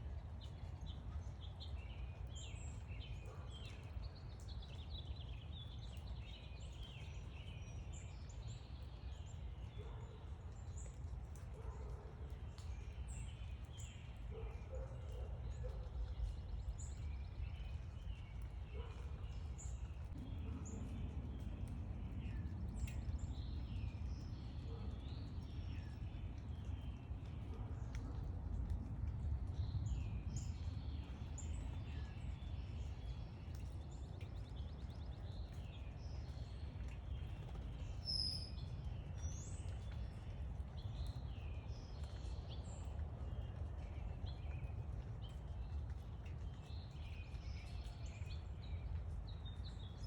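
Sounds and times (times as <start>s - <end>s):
small birds chirping: 0.2s - 50.0s
low background rumble: 15.7s - 35.4s.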